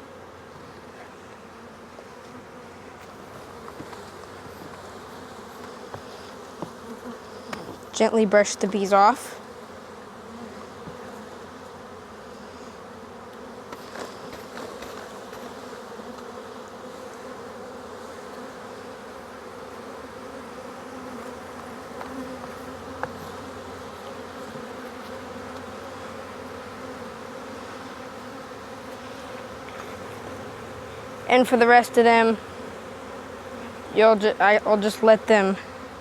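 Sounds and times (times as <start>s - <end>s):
honey bees buzzing: 0.0s - 36.0s.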